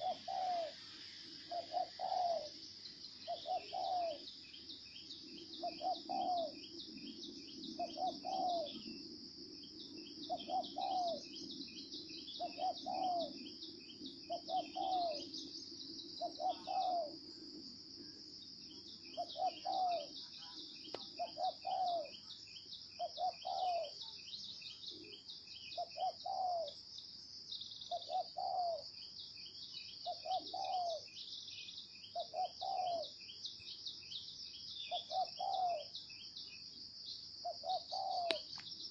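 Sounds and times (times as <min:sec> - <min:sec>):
dove cooing: 0:00.0 - 0:00.8, 0:01.4 - 0:02.6, 0:03.2 - 0:04.3, 0:05.5 - 0:09.0, 0:10.2 - 0:11.4, 0:12.4 - 0:13.6, 0:14.3 - 0:15.3, 0:16.2 - 0:17.4, 0:19.0 - 0:22.2, 0:23.0 - 0:24.1, 0:25.0 - 0:26.8, 0:27.9 - 0:28.9, 0:30.0 - 0:31.1, 0:32.1 - 0:33.2, 0:34.8 - 0:36.0, 0:37.4 - 0:38.5
insects trilling: 0:00.0 - 0:38.9.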